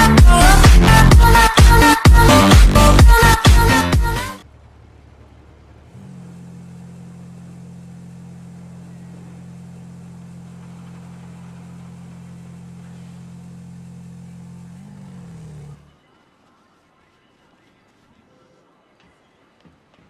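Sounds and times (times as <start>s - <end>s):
quad bike engine idling: 0.0s - 16.0s.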